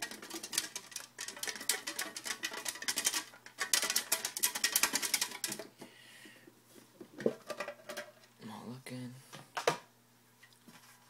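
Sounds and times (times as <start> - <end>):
hands clicking and rustling: 0.0 - 5.8.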